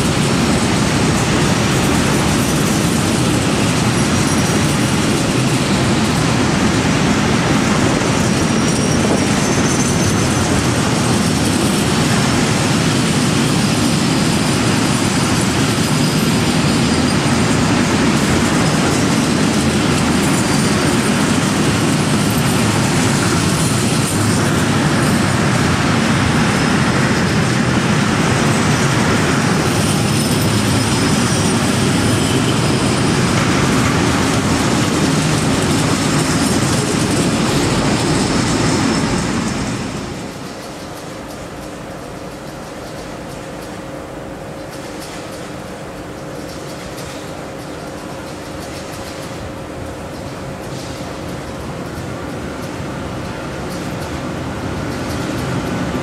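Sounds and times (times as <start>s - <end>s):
train wheels rumbling on rail: 0.0s - 56.0s
faint high wheel squeal: 8.3s - 11.8s.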